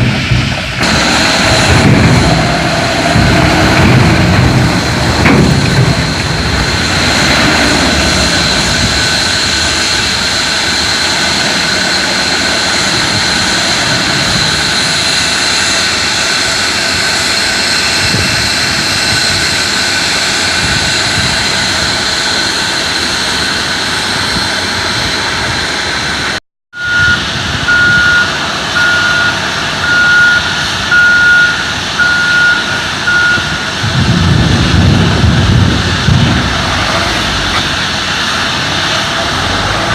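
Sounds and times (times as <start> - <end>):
heavy truck engine whining: 0.0 - 39.9
reversing alarm beeping: 4.7 - 16.6, 26.7 - 33.8.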